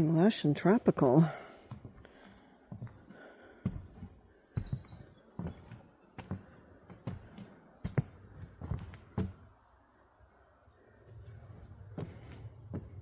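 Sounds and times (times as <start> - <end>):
footsteps walking: 1.4 - 9.6, 11.2 - 13.0
small bird trilling: 3.8 - 5.1.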